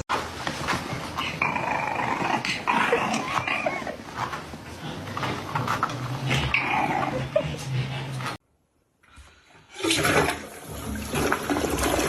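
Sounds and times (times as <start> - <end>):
dog growling: 1.1 - 8.4.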